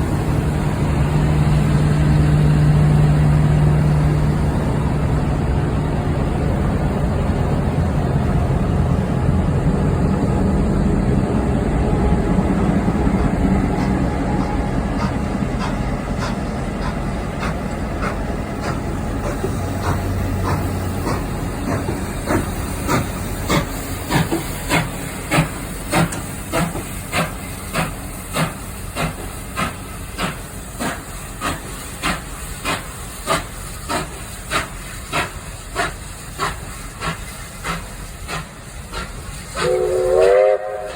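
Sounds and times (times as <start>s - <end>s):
steam locomotive chuffing: 0.0s - 40.9s
train rumble: 0.0s - 40.9s
steam hiss: 12.5s - 40.9s.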